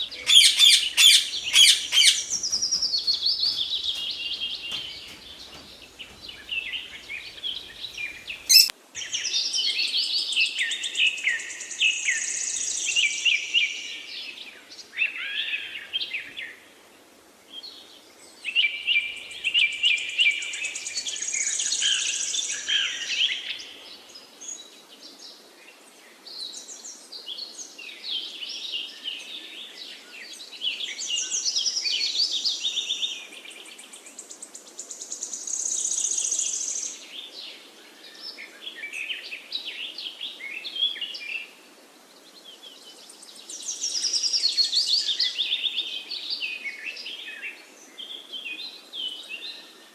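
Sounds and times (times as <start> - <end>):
small birds chirping and warbling: 0.0 - 8.7.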